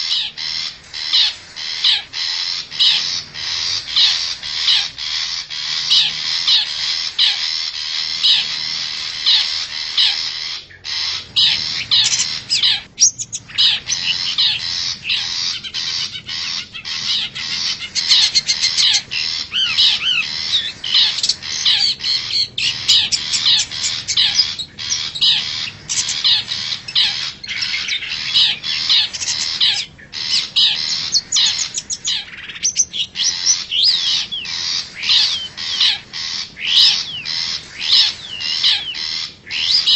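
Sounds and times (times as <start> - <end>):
shrike harsh chattering call: 0.0 - 39.9.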